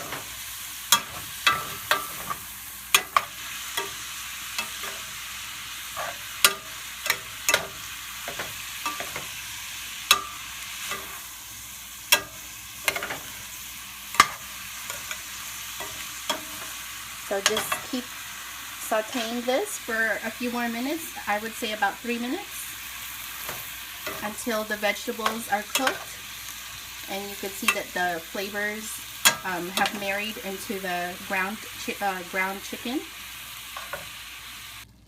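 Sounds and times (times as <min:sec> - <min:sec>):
utensil scraping a pan: 0:00.0 - 0:09.5
meat sizzling in a skillet: 0:00.0 - 0:35.0.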